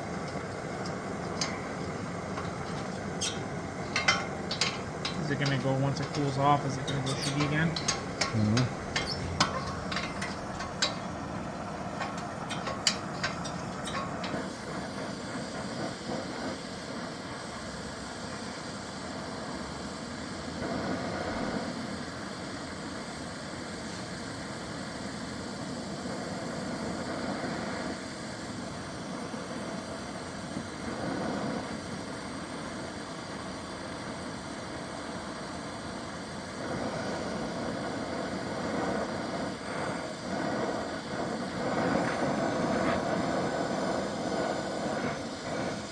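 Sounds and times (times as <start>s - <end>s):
gas torch flame hissing: 0.0s - 45.9s
metal tools clinking: 0.1s - 14.5s.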